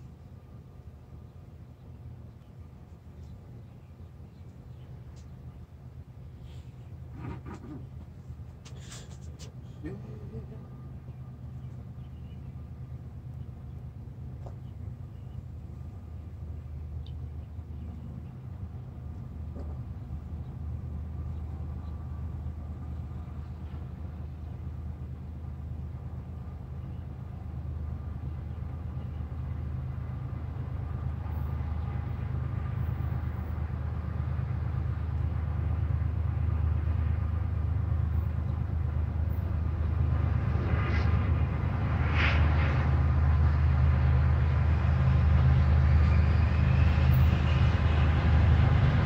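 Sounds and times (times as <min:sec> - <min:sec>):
diesel locomotives rumbling: 0:00.0 - 0:49.0.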